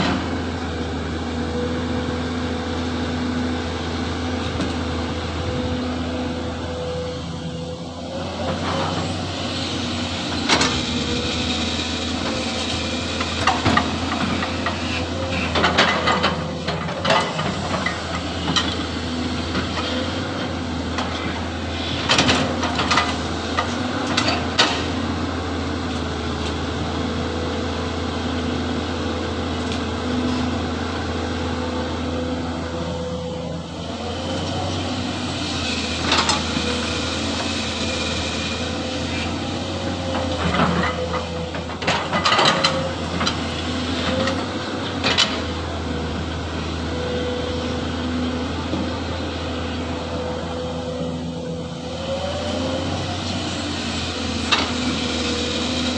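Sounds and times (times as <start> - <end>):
excavator clanks and knocks: 0.0 - 0.6, 4.4 - 5.8, 9.8 - 25.2, 35.7 - 47.4, 54.0 - 55.9
excavator diesel engine running: 0.0 - 55.9.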